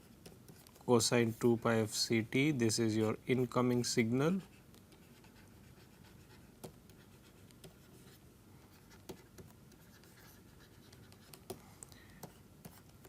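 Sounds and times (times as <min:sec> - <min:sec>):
pen scratching on paper: 0:04.4 - 0:11.5.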